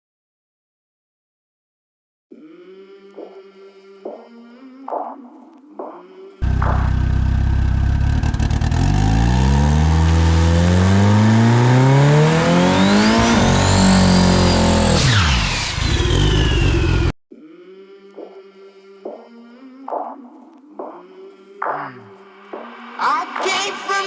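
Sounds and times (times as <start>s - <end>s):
drag car engine at full throttle: 6.4s - 17.1s
high turbo whine: 6.4s - 17.1s.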